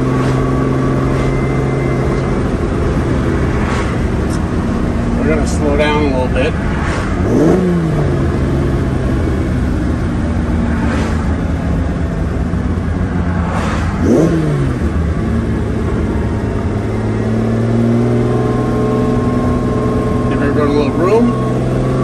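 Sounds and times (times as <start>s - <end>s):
car engine running at low revs: 0.0s - 22.0s
engine throttle blips: 0.0s - 22.0s.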